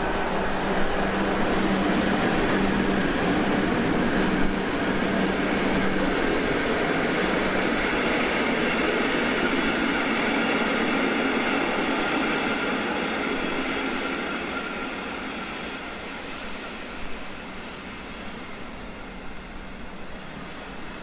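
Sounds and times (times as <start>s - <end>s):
train wheels running: 0.0s - 21.0s.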